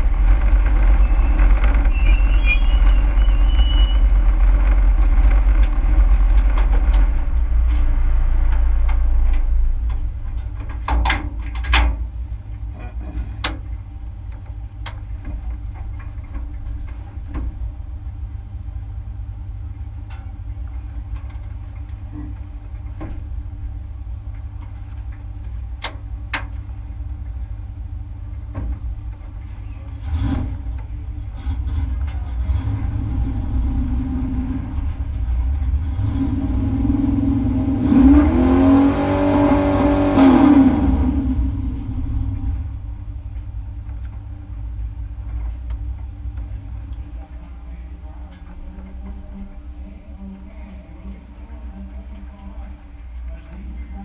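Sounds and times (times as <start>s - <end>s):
truck engine rumble: 0.0s - 54.0s
clicks and knocks in cab: 9.9s - 12.0s.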